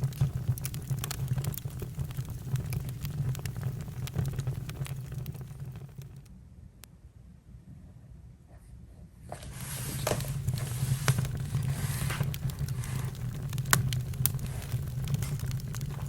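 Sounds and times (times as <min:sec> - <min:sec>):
campfire crackling and popping: 0:00.0 - 0:06.3, 0:09.5 - 0:16.0.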